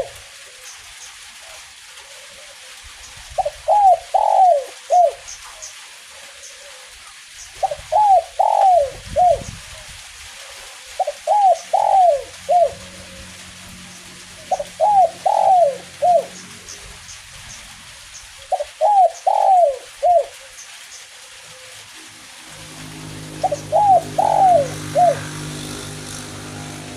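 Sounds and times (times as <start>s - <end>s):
light drizzle patter: 0.0s - 26.9s
dove cooing: 3.4s - 5.2s, 7.6s - 9.8s, 10.4s - 13.4s, 14.4s - 17.0s, 18.4s - 20.5s, 22.6s - 26.9s.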